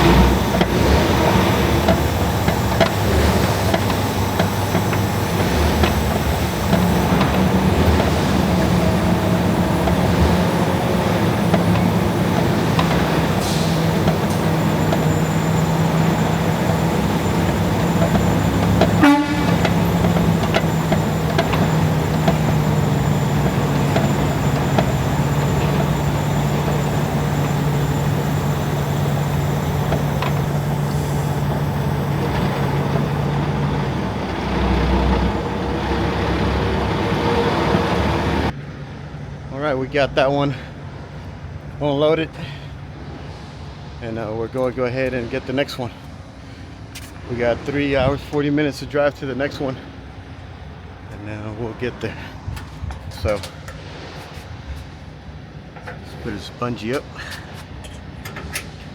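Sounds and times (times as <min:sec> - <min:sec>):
mechanical drone: 0:00.0 - 0:38.5.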